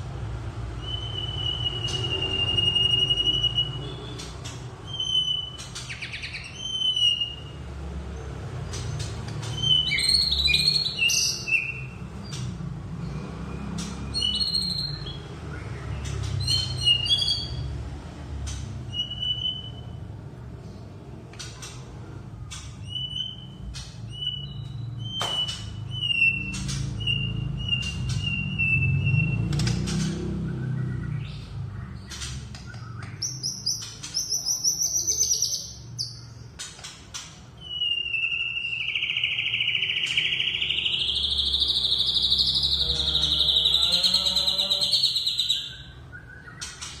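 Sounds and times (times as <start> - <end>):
descending whistled bird notes: 0.8 - 7.6, 9.4 - 12.0, 13.5 - 17.7, 18.5 - 20.0, 22.5 - 36.3, 37.6 - 47.0
rising bird chatter: 22.4 - 47.0.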